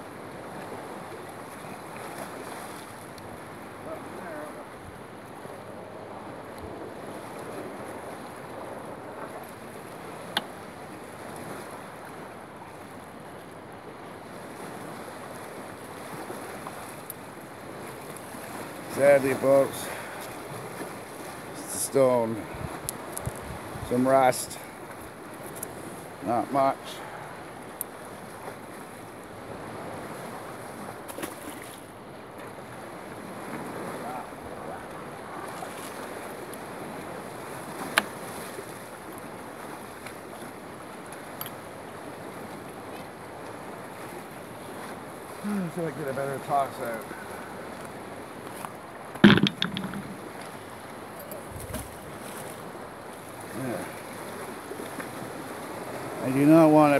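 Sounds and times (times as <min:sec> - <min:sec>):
lake waves washing: 0:00.0 - 0:56.9
wind on microphone: 0:22.4 - 0:23.9
sharp click: 0:49.2 - 0:50.2.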